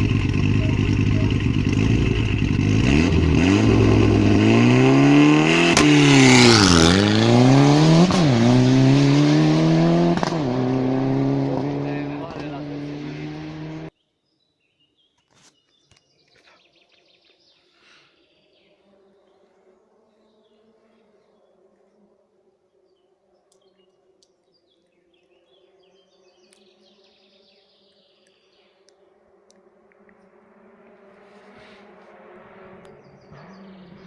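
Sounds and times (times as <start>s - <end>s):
distant engine hum: 0.0s - 13.9s, 29.2s - 34.0s.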